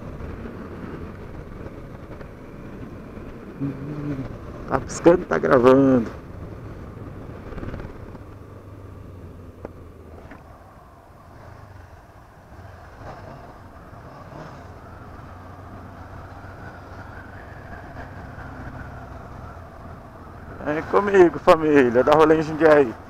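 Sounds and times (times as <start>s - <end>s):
motorcycle engine running: 0.0s - 4.8s.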